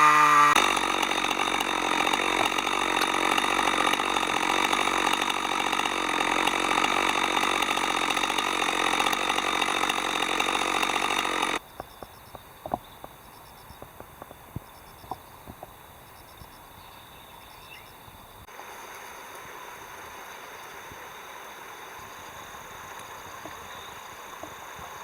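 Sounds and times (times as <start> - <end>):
chainsaw cutting wood: 0.0 - 11.6, 20.7 - 25.0
insects chirping: 11.1 - 25.0.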